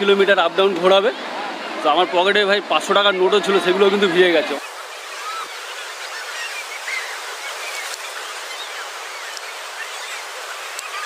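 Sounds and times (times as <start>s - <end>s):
faint rising and falling calls: 4.6s - 11.0s.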